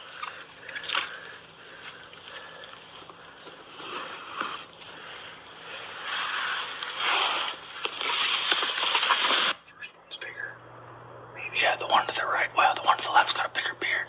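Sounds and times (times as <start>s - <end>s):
fabric rustling and zipping: 5.6s - 9.6s.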